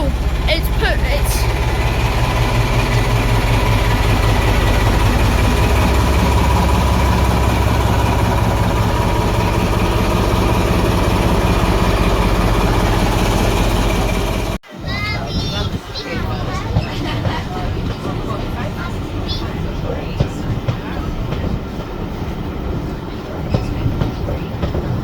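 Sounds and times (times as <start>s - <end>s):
large diesel engine idling: 0.0s - 14.6s.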